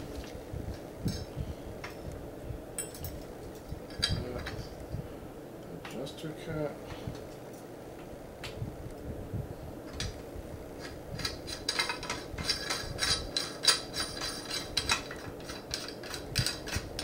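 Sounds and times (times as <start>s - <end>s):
small metal parts clinking: 10.8s - 17.0s.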